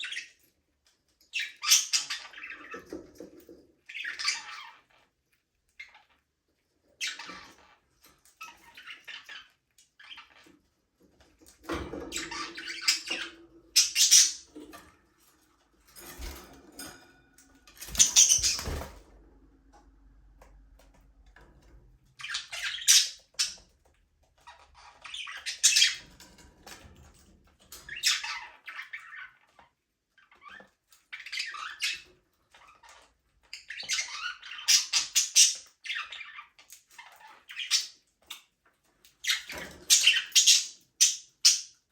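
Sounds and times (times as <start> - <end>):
budgerigars chattering: 12.2 - 14.4, 17.9 - 18.7.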